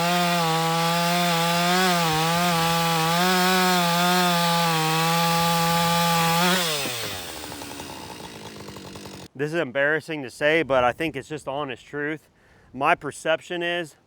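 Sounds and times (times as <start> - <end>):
chainsaw cutting wood: 0.0 - 9.3.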